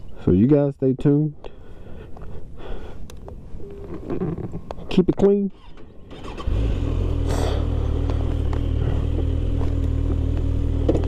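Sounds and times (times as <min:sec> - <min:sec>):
motorcycle engine idling: 0:05.9 - 0:11.0.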